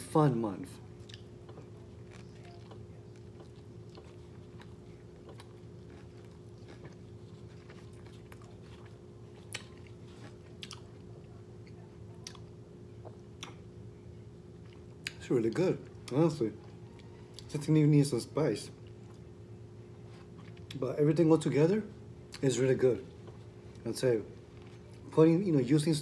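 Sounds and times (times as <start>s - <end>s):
faint steady hum: 0.0s - 26.0s
person chewing food: 0.9s - 13.7s, 14.5s - 17.6s, 18.8s - 20.8s, 23.1s - 23.8s, 24.5s - 25.1s.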